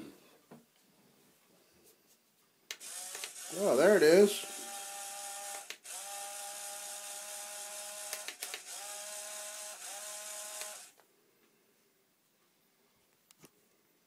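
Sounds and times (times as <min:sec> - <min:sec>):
small electric motor whining: 0:02.8 - 0:11.0.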